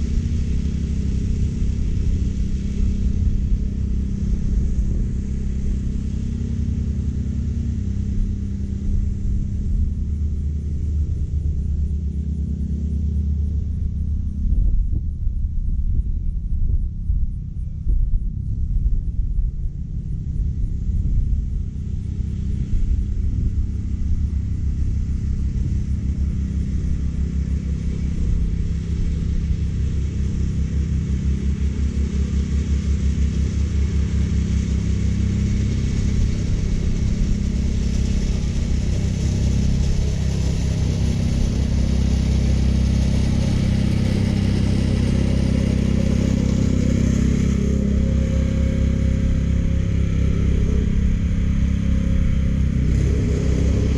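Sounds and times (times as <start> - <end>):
reel mower blades hissing: 31.8 - 53.9.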